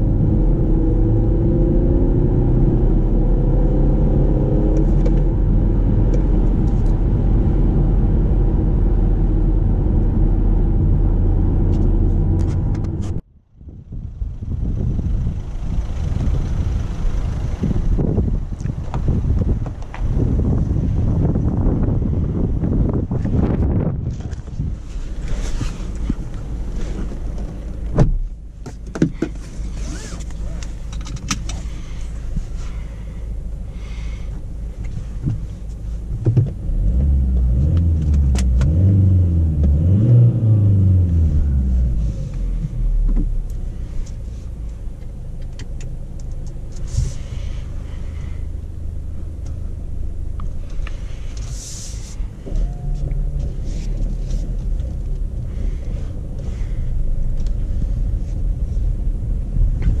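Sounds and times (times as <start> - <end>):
engine revving: 0.0 - 13.2, 36.7 - 43.0
diesel car engine idling: 13.7 - 23.0, 30.3 - 36.1, 40.8 - 60.0
light clicks in car cabin: 43.0 - 46.9.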